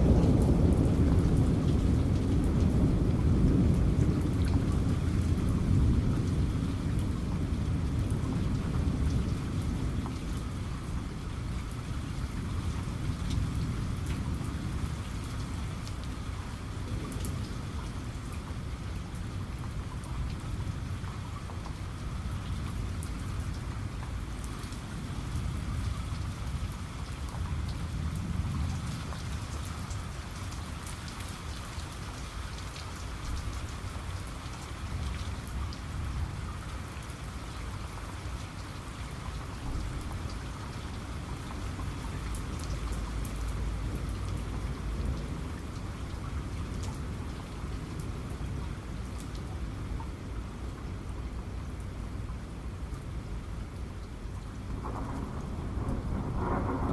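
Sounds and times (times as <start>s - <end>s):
distant thunder rumble: 0.0s - 18.6s, 54.6s - 56.9s
heavy rain falling: 0.0s - 56.9s.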